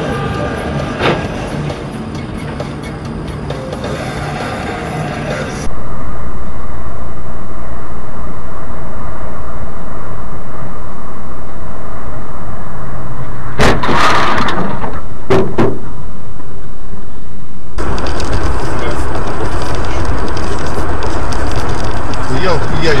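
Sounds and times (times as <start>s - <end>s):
car road and engine noise: 0.0s - 13.8s, 17.8s - 23.0s
loud crash impact: 13.6s - 15.8s.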